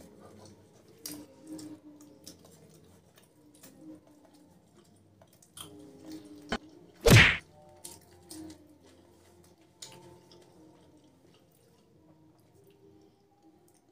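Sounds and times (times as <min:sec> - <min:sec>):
small clicks of eating: 0:00.0 - 0:06.9, 0:07.5 - 0:13.9
chewing food: 0:00.0 - 0:13.9
faint background music: 0:00.0 - 0:13.9
sudden loud burst: 0:07.1 - 0:07.4.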